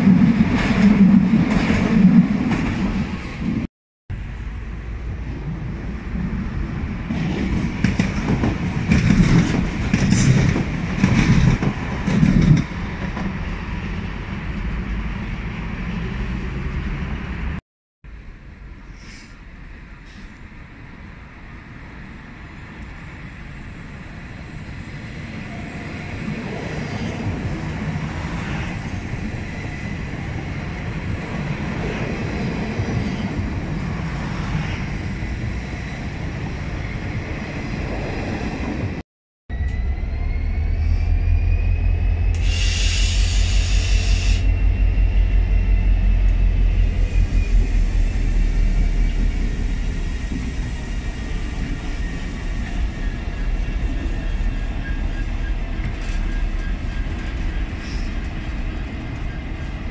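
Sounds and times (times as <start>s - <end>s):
electric train rumbling past: 0.0s - 59.9s
diesel locomotive throbbing: 39.5s - 59.9s.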